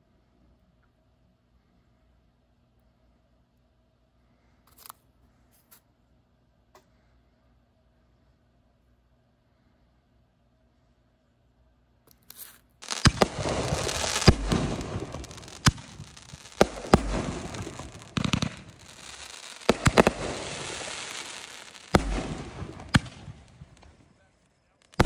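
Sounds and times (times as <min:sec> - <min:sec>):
firework crackling hiss: 0:12.3 - 0:24.2
firework shell booms: 0:12.8 - 0:24.1.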